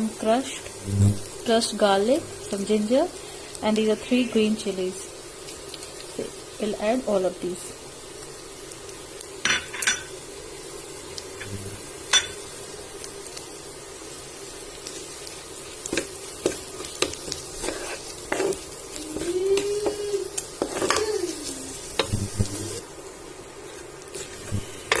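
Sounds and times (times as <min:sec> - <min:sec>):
food sizzling in hot oil: 0:00.0 - 0:25.0.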